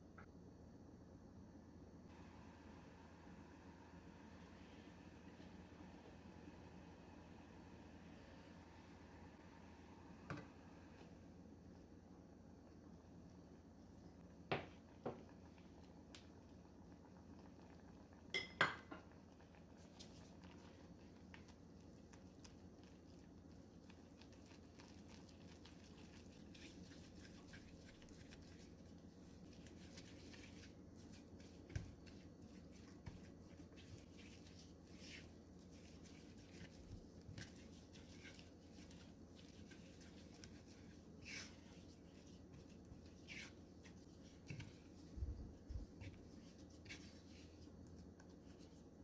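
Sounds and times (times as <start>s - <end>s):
low steady hum: 0.0s - 49.0s
kitchenware clinking: 18.4s - 19.1s.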